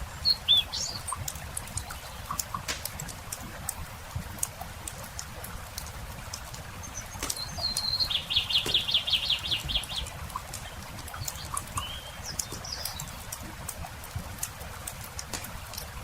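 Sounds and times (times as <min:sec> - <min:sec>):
campfire crackling: 0:00.0 - 0:16.0
songbird trilling: 0:00.2 - 0:01.2, 0:06.8 - 0:10.1, 0:11.2 - 0:13.2.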